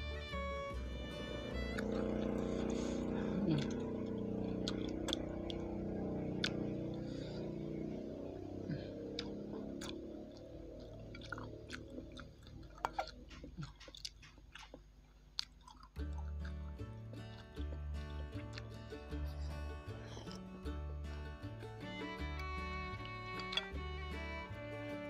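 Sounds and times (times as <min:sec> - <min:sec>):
chewing with wet mouth sounds: 0:01.7 - 0:21.0.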